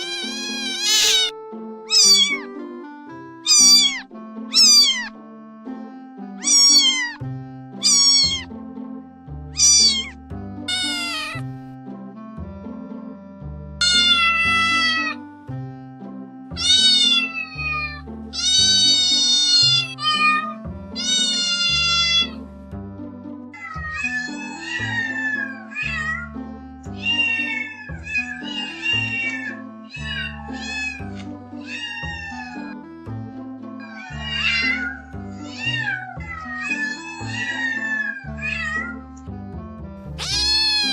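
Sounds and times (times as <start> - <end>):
cat meowing: 0.0 - 2.5, 3.4 - 5.1, 6.4 - 7.2, 7.8 - 8.5, 9.6 - 11.5, 13.8 - 15.2, 16.6 - 22.4, 23.6 - 26.4, 27.0 - 32.8, 33.8 - 39.0, 40.1 - 40.9
background music: 0.0 - 40.9.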